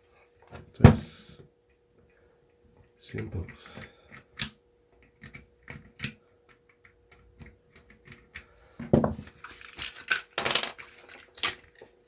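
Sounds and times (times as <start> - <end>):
parts clattering: 8.8 - 11.9.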